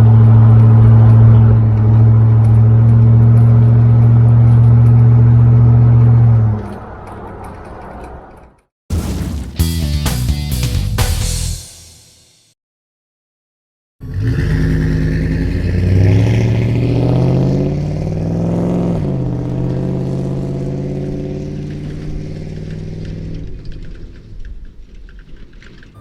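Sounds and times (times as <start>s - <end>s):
truck exhaust accelerating: 0.0s - 8.4s, 14.0s - 26.0s.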